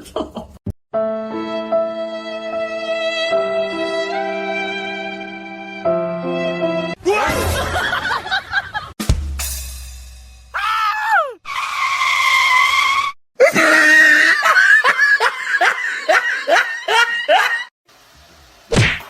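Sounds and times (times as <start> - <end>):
person crying out: 10.6 - 11.4, 13.4 - 14.5.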